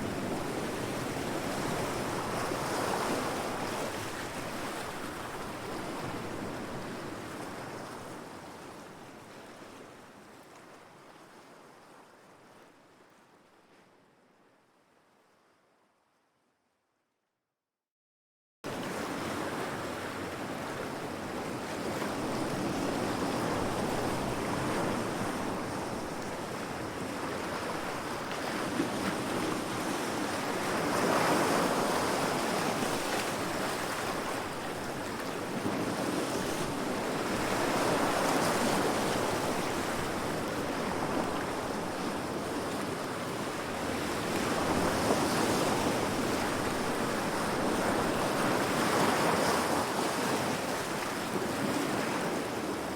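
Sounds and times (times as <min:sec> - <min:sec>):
heavy waves breaking against rocks: 0:26.5 - 0:52.9.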